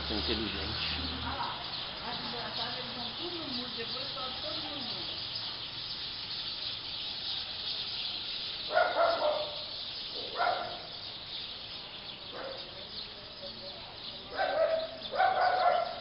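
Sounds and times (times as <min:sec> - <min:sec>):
flock of birds chattering: 0:00.0 - 0:16.0
dog barking: 0:08.7 - 0:10.9, 0:12.3 - 0:12.8, 0:14.3 - 0:16.0.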